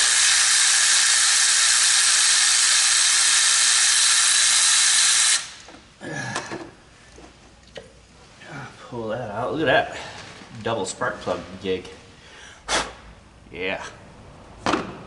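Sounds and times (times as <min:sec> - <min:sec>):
pressurized air hissing: 0:00.0 - 0:05.7.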